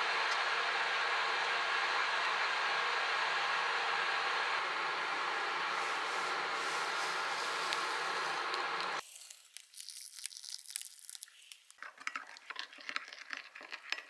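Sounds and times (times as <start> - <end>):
steady rushing noise: 2.2 - 9.0
packaging crinkling and tearing: 5.8 - 14.0.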